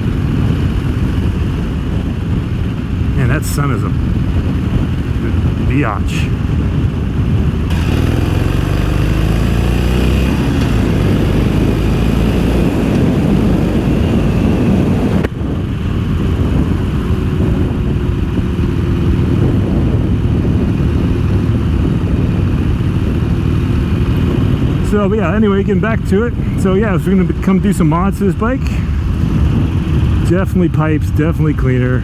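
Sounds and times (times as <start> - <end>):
wind and road noise: 0.0 - 32.0
motorcycle engine accelerating: 6.4 - 30.4.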